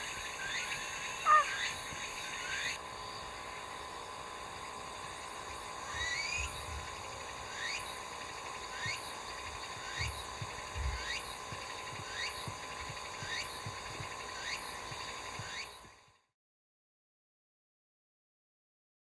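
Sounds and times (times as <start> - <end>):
small animal short rising call: 1.2 - 1.7.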